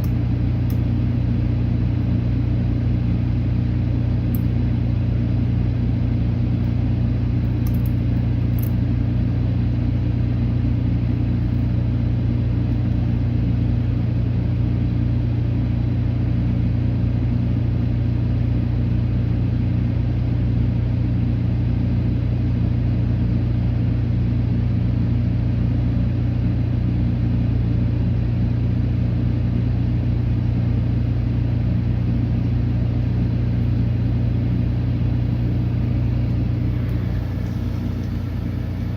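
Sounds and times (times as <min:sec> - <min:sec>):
car engine idling: 0:31.6 - 0:38.9.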